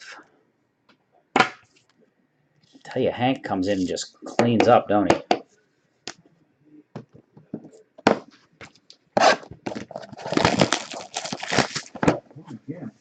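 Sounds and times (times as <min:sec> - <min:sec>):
card wrappers crinkling: 0:09.7 - 0:12.0
wrappers tearing and crumpling: 0:09.7 - 0:12.0.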